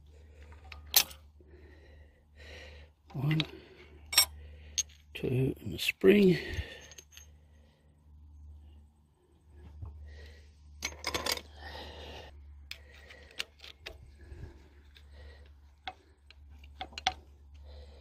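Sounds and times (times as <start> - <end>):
low steady hum: 0.0 - 18.0
metal valve parts clinking: 0.6 - 1.2, 3.3 - 5.2, 6.5 - 7.5, 10.8 - 11.6, 15.8 - 17.3.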